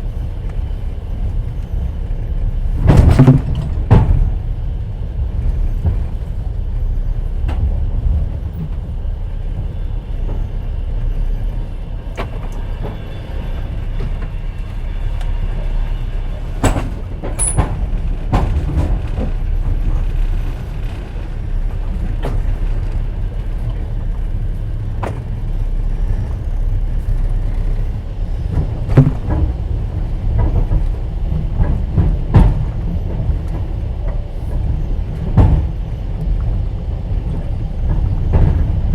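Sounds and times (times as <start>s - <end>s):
train running rumble: 0.0s - 38.9s
wheels clicking over track: 16.5s - 25.5s.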